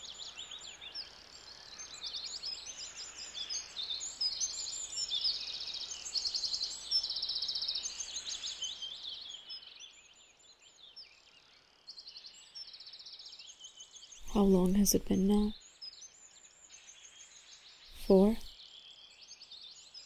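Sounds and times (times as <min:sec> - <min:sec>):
songbirds chirping and trilling: 0:00.0 - 0:20.0.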